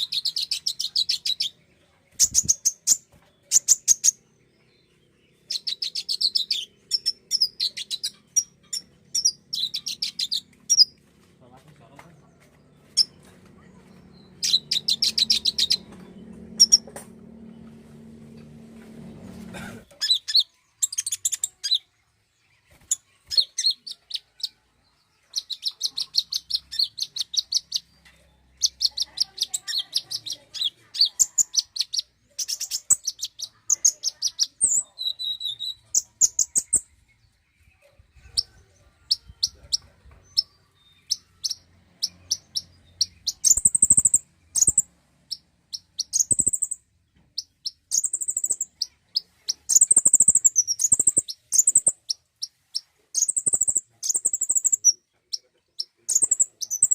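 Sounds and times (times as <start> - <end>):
bird chirping trills: 0.0 - 56.9
low hum: 12.2 - 19.9.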